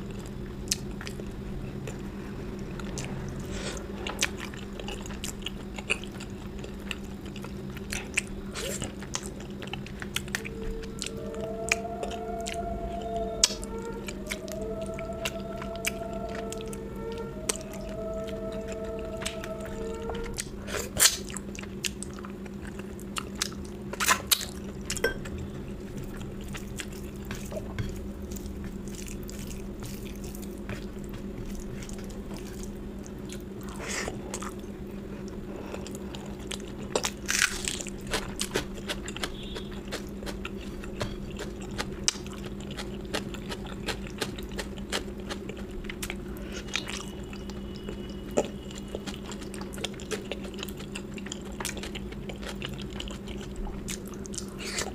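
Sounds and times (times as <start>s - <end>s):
steady low hum: 0.0s - 54.9s
chewing and biting food: 2.6s - 12.6s, 18.6s - 54.9s
food crunches: 36.5s - 47.1s.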